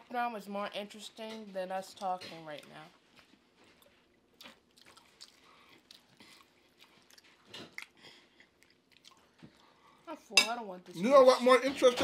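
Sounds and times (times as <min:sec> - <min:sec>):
chewing crispy fried fish: 0:02.6 - 0:10.0.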